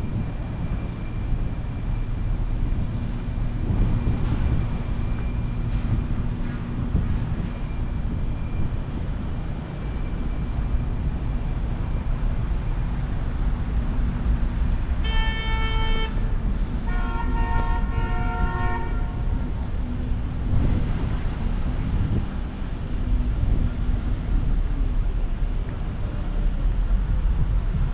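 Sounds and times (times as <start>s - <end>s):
city traffic rumble: 0.0s - 27.9s
car horn honks: 15.0s - 16.3s, 16.9s - 19.2s.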